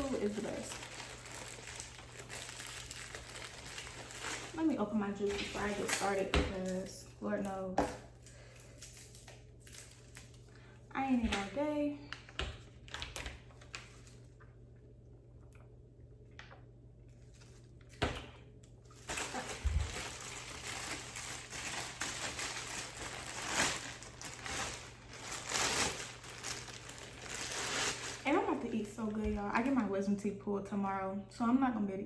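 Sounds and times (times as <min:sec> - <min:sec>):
rustling and sloshing: 0:18.8 - 0:29.5.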